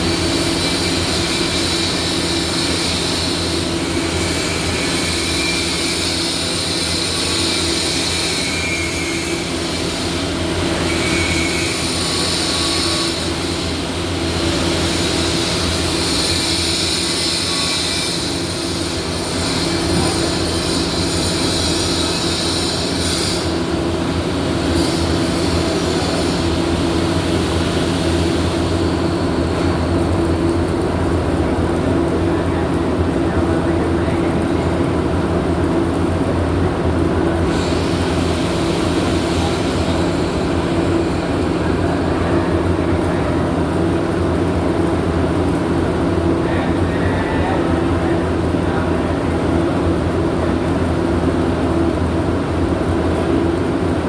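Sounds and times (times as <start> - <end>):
welding arcs crackling: 0.0 - 33.6
welding machines humming: 0.0 - 54.0.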